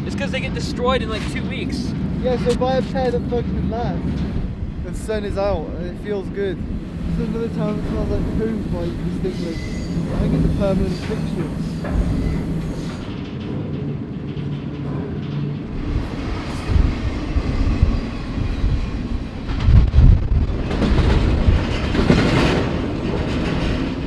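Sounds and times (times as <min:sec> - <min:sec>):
train wheels rumbling and clattering: 0:00.0 - 0:24.0
heavy knocks: 0:06.8 - 0:13.1.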